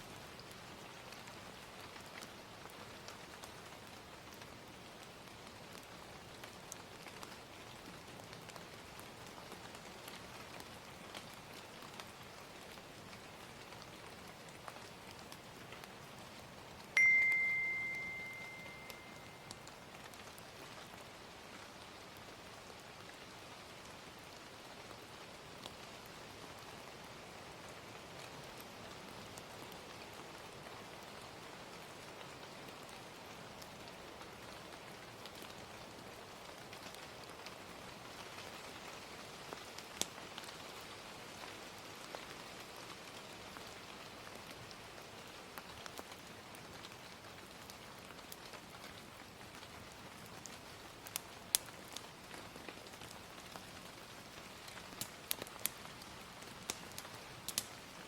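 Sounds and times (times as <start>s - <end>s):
gentle rain falling: 0.0s - 58.0s
wood fire crackling: 0.1s - 58.0s.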